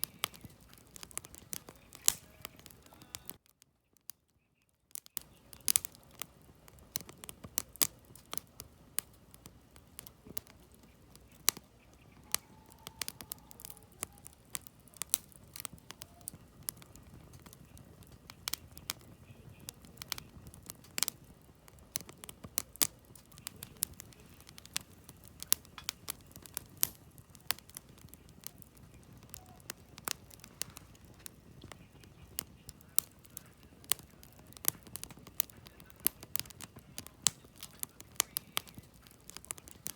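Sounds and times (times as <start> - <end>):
low rush of flames: 0.0 - 3.4, 5.2 - 39.9
campfire crackling and popping: 0.0 - 39.9.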